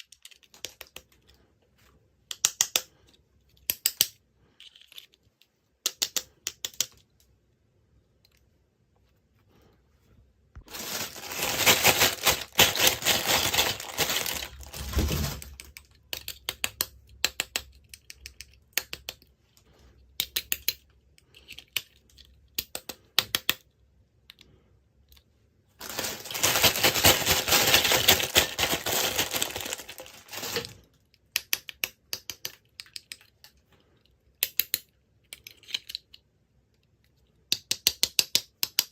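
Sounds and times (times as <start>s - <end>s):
small clicks and taps: 0.0s - 1.4s, 2.2s - 7.3s, 15.6s - 19.4s, 20.1s - 25.3s, 31.0s - 38.9s
packaging crinkling and rustling: 10.6s - 15.6s, 25.8s - 30.8s.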